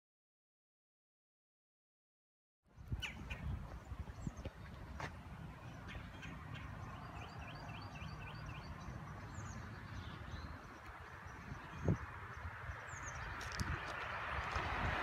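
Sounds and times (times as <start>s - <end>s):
small birds chirping: 2.7s - 14.6s.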